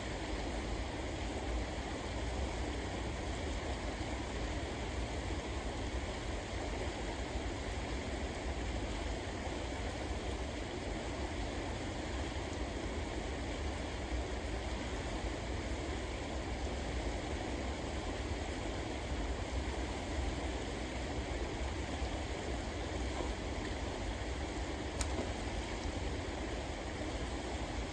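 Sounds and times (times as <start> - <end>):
river water rushing: 19.6 - 27.9
faint click: 25.0 - 25.9.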